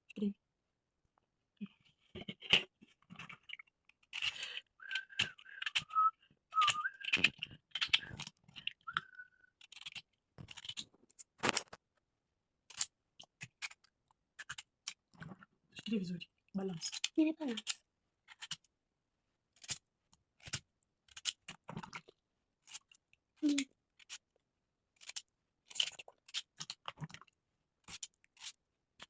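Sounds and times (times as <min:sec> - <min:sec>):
person whistling: 0:04.8 - 0:07.3, 0:08.9 - 0:09.4.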